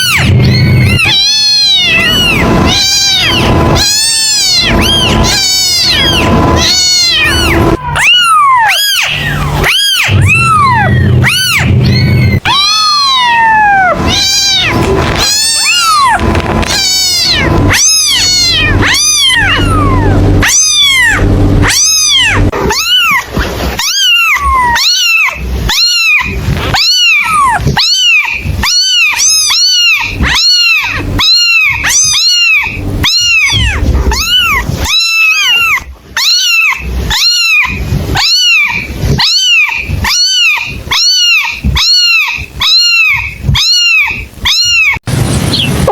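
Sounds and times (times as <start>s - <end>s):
low steady hum: 0.0s - 36.2s
kittens mewing: 0.0s - 45.9s.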